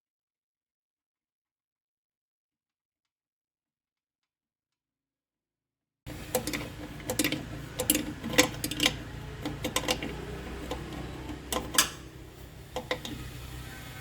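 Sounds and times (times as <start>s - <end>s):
hand tools clicking and tapping: 6.1s - 13.5s.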